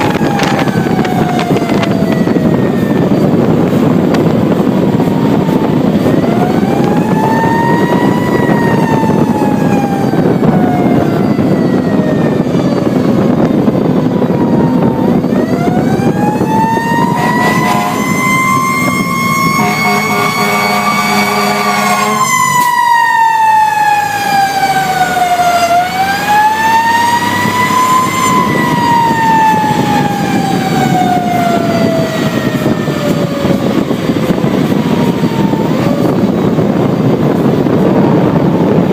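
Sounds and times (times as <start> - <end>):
fire engine siren wailing: 0.0 - 38.9
truck engine rumble: 0.0 - 38.9
steady vehicle horn: 17.0 - 22.4.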